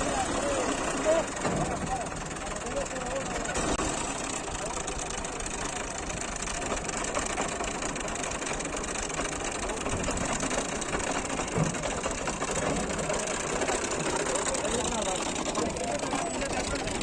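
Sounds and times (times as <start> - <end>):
heavy vehicle engine clattering: 0.0 - 17.0.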